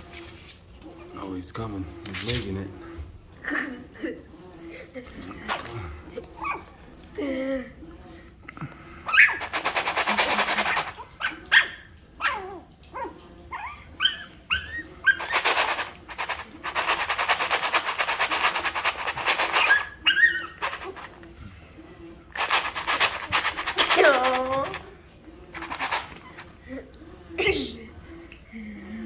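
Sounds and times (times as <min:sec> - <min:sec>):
puppies whimpering and yelping: 0:09.1 - 0:09.6, 0:10.7 - 0:15.6, 0:19.5 - 0:21.1
rapid raspy pulsing: 0:09.4 - 0:11.1.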